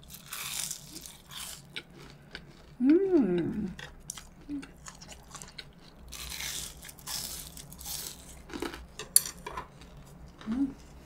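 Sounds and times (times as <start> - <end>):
crunchy food being chewed: 0.0 - 9.0.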